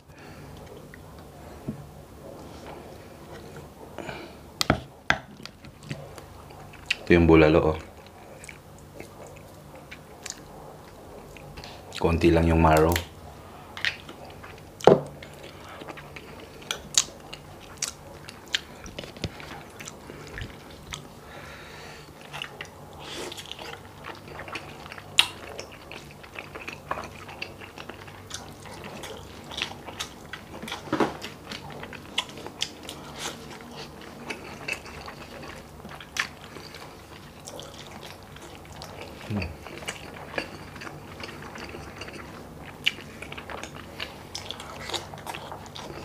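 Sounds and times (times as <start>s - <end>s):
chewing and wet mouth smacks: 13.8s - 21.1s, 22.2s - 46.0s.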